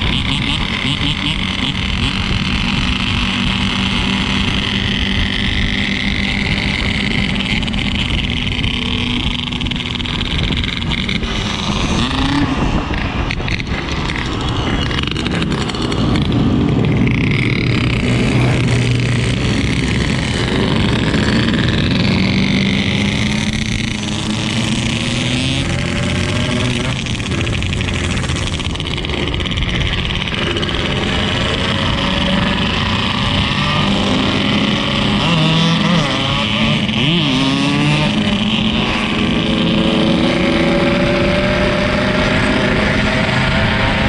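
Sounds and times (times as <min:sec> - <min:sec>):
two-stroke motorcycle engine: 0:00.0 - 0:44.0.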